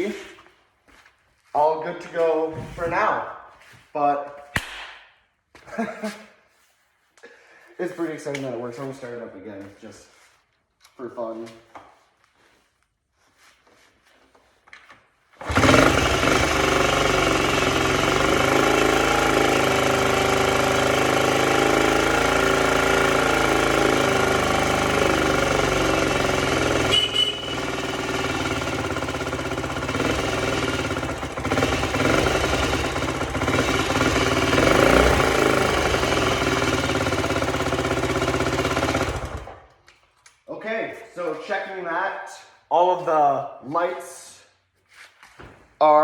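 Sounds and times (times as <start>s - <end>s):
man talking: 0.0s - 0.4s, 1.5s - 4.4s, 7.8s - 10.2s, 11.0s - 11.6s, 40.5s - 44.5s, 45.8s - 46.0s
motorcycle engine running: 15.4s - 39.6s.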